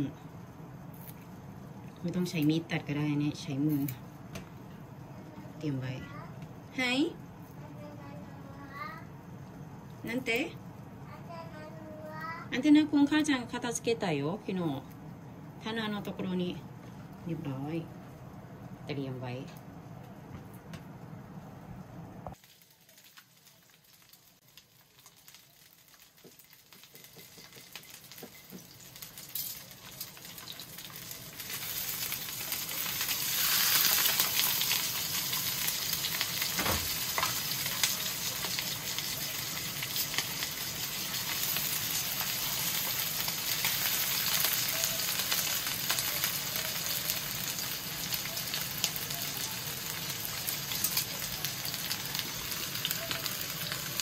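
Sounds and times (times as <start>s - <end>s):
chicken frying in a pan: 22.3s - 54.0s.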